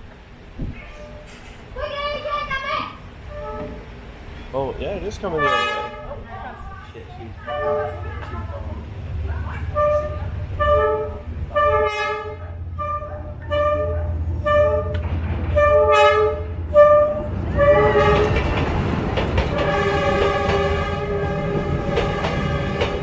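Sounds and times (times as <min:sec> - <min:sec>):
train passing rumble and clatter: 0:00.0 - 0:23.0
train horn blasts: 0:03.2 - 0:04.0, 0:05.2 - 0:06.2, 0:07.4 - 0:08.4, 0:09.5 - 0:18.7, 0:19.4 - 0:23.0.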